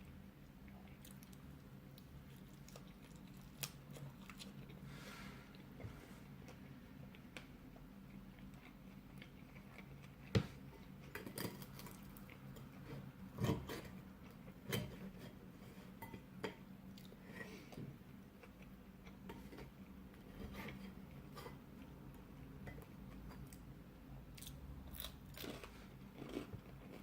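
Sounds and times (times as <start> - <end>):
low steady hum: 0.0 - 27.0
person chewing: 0.7 - 4.8, 6.5 - 14.5, 24.3 - 27.0.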